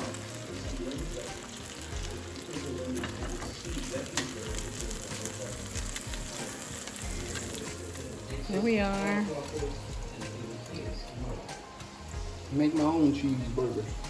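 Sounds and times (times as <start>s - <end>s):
patties sizzling in a pan: 0.0s - 14.0s.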